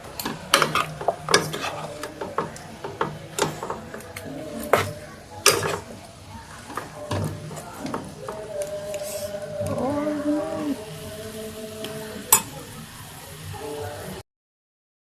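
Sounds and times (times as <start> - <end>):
spoon stirring in a pot: 0.0 - 10.8.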